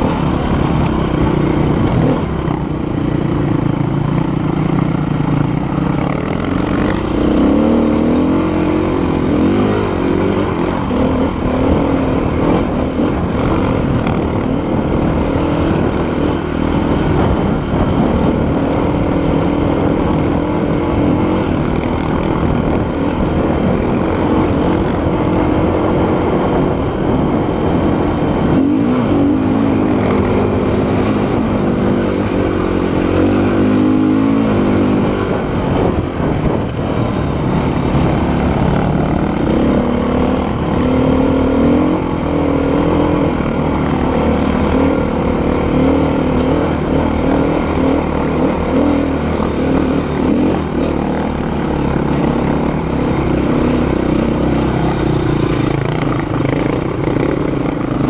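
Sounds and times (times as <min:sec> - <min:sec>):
motorcycle engine: 0:00.0 - 0:58.0
wind noise: 0:00.0 - 0:58.0.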